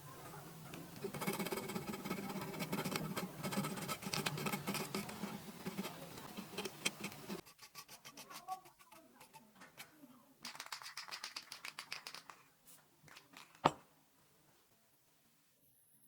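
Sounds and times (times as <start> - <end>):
scratching and clicking on wood: 0.7 - 9.9.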